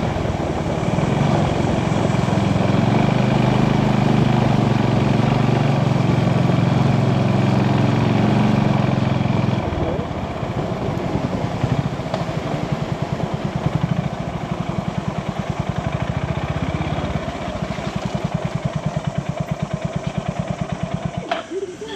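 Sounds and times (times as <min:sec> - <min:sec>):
motorcycle engine idling: 0:00.0 - 0:21.9.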